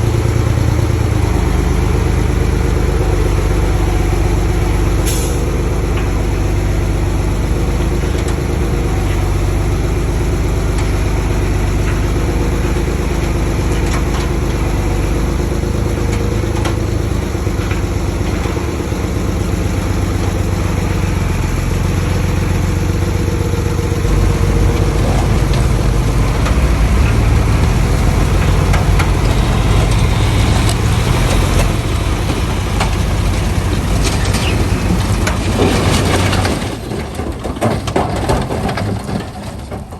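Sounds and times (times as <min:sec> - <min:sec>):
heavy machinery diesel engine running: 0:00.0 - 0:39.9.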